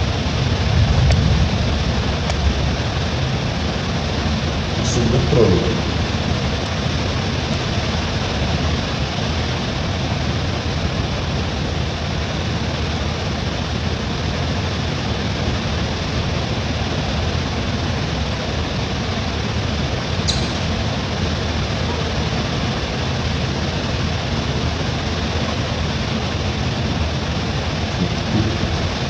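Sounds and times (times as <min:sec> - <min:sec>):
sharp click: 0:20.3 - 0:20.8.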